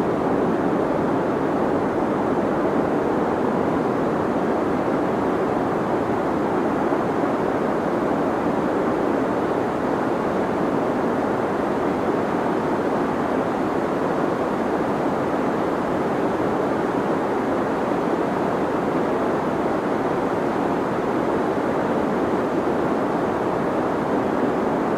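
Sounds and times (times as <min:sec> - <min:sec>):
deep white noise hiss: 0:00.0 - 0:24.9.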